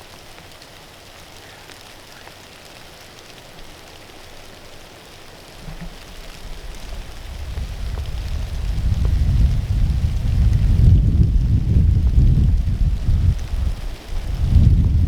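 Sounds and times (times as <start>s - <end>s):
strong wind hissing through timber: 5.5s - 15.0s
wind buffeting microphone: 5.6s - 15.0s.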